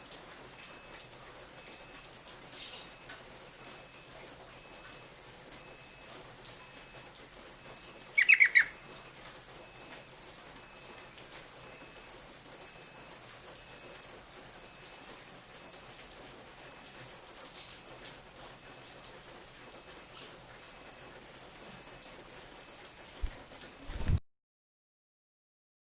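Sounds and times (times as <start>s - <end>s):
bird bubbly notes: 8.1s - 8.8s.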